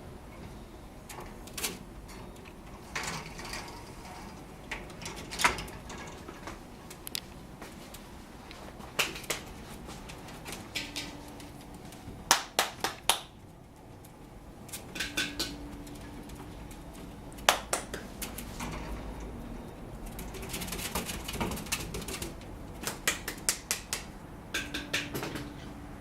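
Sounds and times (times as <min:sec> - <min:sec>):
sharp taps and clicks: 0:12.3 - 0:13.4, 0:17.4 - 0:18.4, 0:21.4 - 0:25.5.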